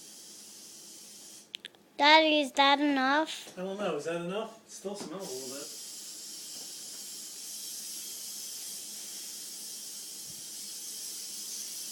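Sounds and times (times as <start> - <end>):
aerosol spray hissing: 0.0 - 1.5, 5.2 - 11.9.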